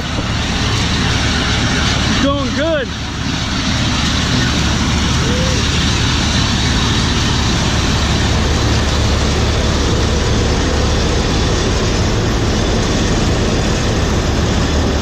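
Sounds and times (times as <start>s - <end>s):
combine harvester droning: 0.0s - 15.0s.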